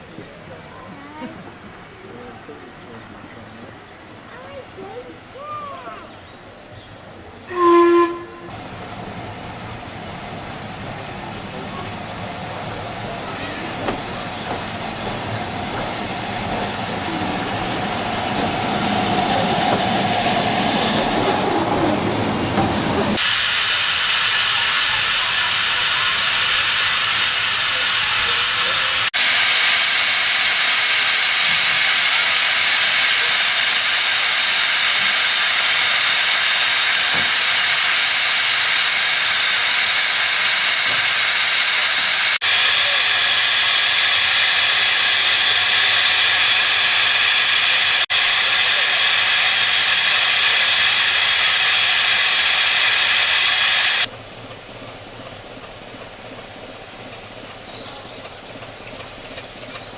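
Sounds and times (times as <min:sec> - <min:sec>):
steam locomotive hissing steam: 0:07.5 - 0:54.1.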